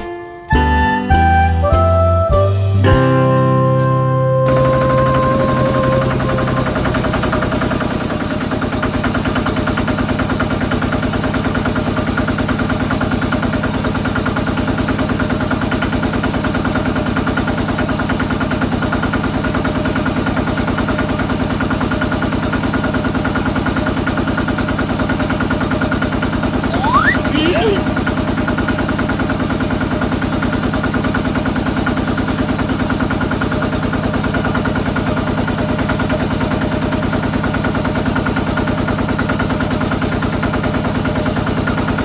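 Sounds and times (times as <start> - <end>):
small engine running: 4.4 - 24.6.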